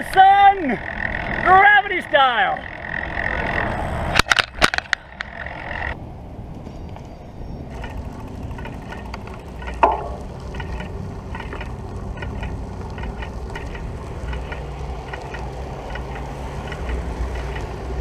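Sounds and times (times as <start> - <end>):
bicycle tyre noise: 0.0 - 1.7, 2.6 - 18.0
wind rumbling on microphone: 2.7 - 18.0
rattling ticks: 6.9 - 18.0.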